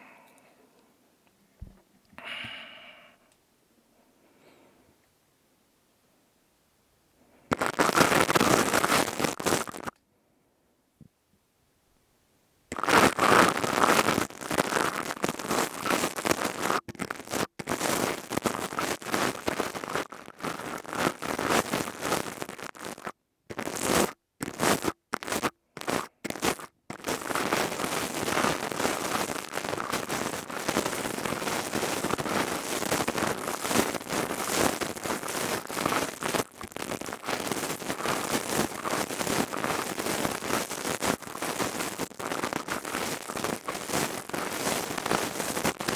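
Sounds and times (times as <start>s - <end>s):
crystal tubes crackling and scraping: 7.5s - 10.0s, 12.7s - 45.9s.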